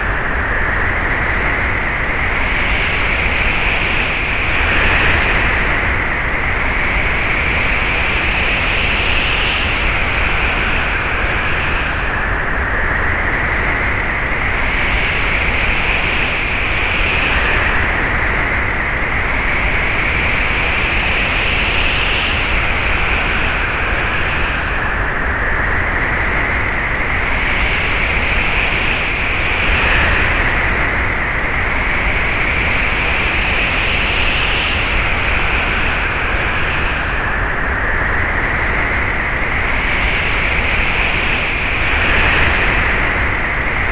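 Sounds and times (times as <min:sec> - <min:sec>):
loud rushing wind: 0:00.0 - 0:43.9
whistling wind howl: 0:00.0 - 0:43.9.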